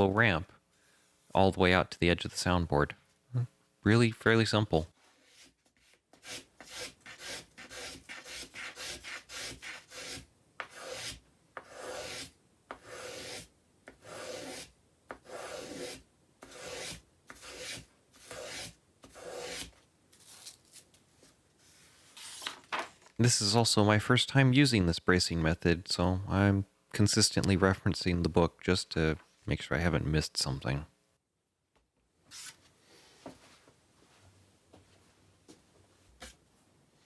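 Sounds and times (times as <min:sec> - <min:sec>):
hand tool shaving wood: 0:06.2 - 0:12.2.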